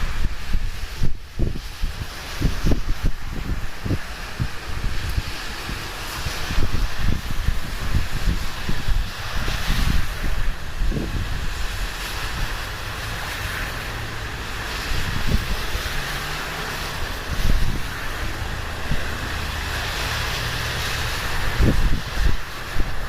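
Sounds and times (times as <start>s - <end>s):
low rumbling wind blasts: 0.0s - 23.0s
wind buffeting microphone: 0.0s - 23.0s.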